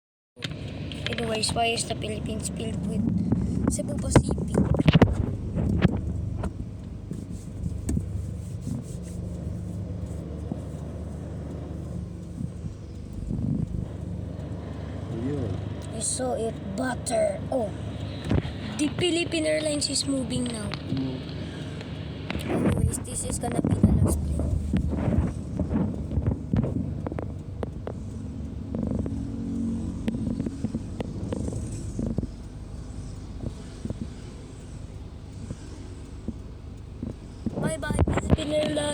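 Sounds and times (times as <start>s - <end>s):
faint even hum: 0.4s - 38.9s
low engine rumble: 0.4s - 38.9s
sharp clicks: 10.8s - 38.9s.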